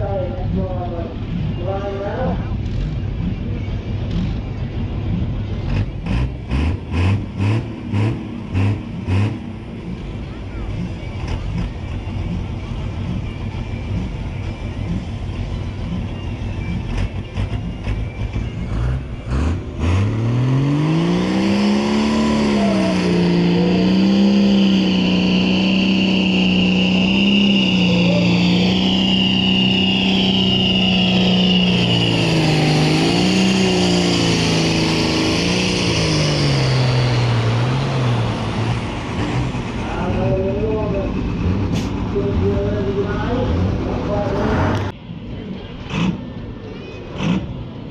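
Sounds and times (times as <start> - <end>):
tractor engine revving: 1.2 - 44.9
high whistle: 24.3 - 33.7.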